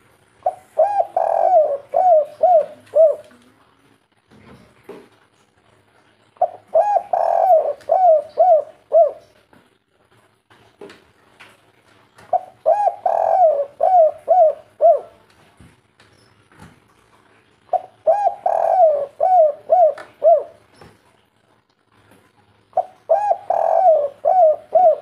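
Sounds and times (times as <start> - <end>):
dove cooing: 0.4 - 3.4, 6.4 - 9.4, 12.3 - 15.2, 17.7 - 20.7, 22.7 - 25.0.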